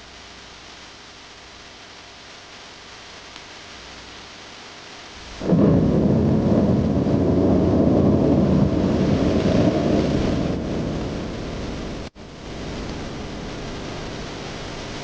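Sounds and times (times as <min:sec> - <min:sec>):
steady rain hiss: 0:00.0 - 0:15.0
low rolling thunder: 0:05.2 - 0:15.0.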